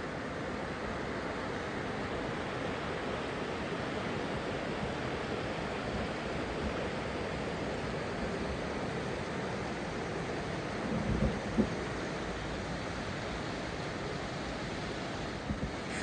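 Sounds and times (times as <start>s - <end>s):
river rapids rushing: 11.7s - 16.0s.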